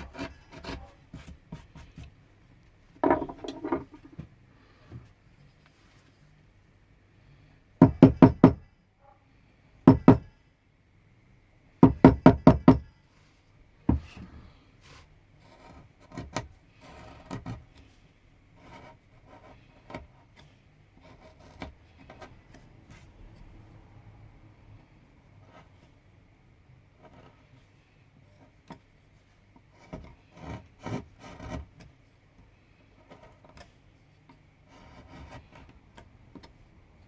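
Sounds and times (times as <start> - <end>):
chisel blade scraping wood: 0.0 - 1.9, 15.4 - 17.6, 18.6 - 20.1, 21.0 - 22.4, 29.7 - 31.9, 33.0 - 33.8, 34.7 - 35.8
mallet knocking on chisel: 3.0 - 3.9.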